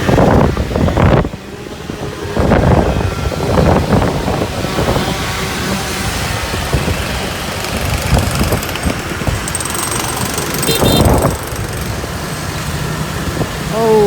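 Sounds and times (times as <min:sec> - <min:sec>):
motorbike engine rumbling: 0:03.6 - 0:14.0.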